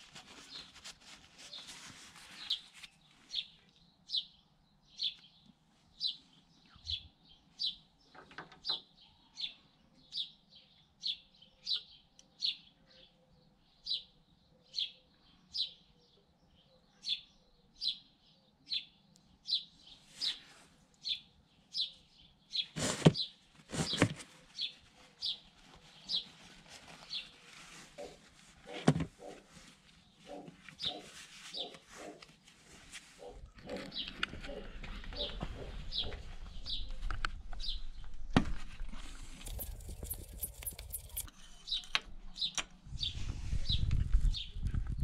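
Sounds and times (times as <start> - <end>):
small bird chirping: 30.0 - 32.4, 39.4 - 45.0.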